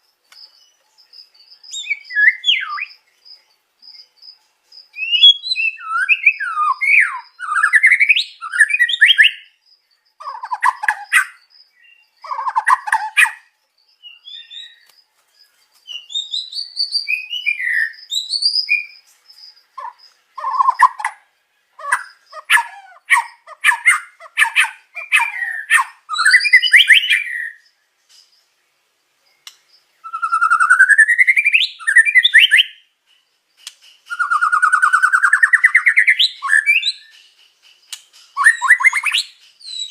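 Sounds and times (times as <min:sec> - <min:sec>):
songbird whistling song: 0:00.0 - 0:28.5, 0:29.2 - 0:39.9
rapid rattling bird clicks: 0:33.6 - 0:34.1.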